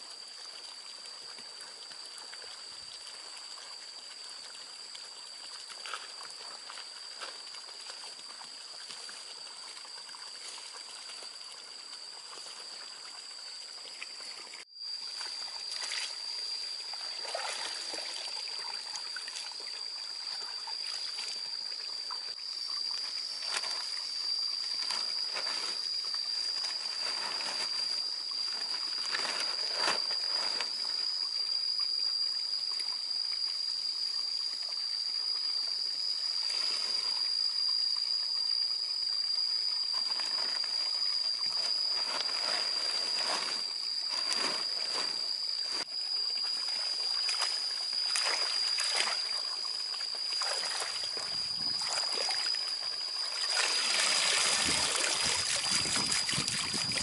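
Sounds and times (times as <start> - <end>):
water pouring and splashing: 16.8 - 21.4, 46.5 - 57.0.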